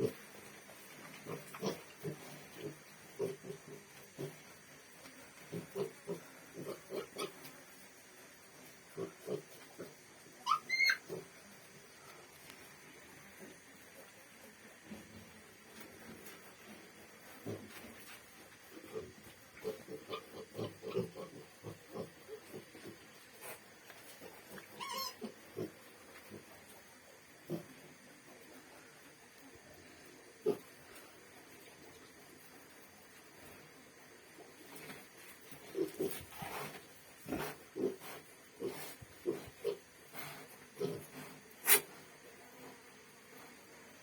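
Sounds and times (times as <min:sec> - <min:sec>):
pigs grunting: 0:01.2 - 0:04.5, 0:05.5 - 0:07.4, 0:08.9 - 0:11.4, 0:18.8 - 0:23.6, 0:24.6 - 0:26.5, 0:27.4 - 0:27.8, 0:35.6 - 0:41.9
pig squealing: 0:10.4 - 0:11.2, 0:24.7 - 0:25.7
sharp pig call: 0:10.4 - 0:11.2.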